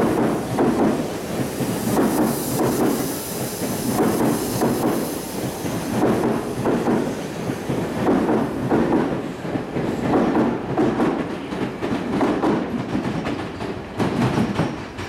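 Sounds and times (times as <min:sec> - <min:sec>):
train wheels clattering over rail joints: 0:00.0 - 0:15.0.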